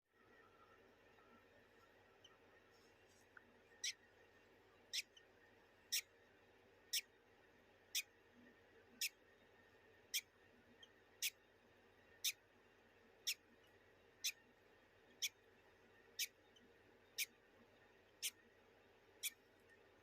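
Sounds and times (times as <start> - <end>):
bird chick peeping: 3.8 - 4.0, 4.8 - 5.3, 13.2 - 14.4, 15.1 - 15.4, 16.1 - 17.4.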